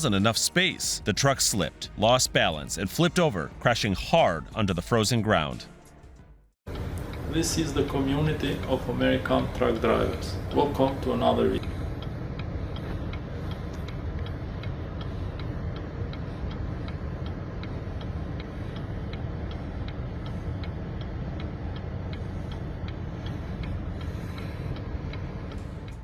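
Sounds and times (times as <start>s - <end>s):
light even ticking: 6.7s - 26.0s.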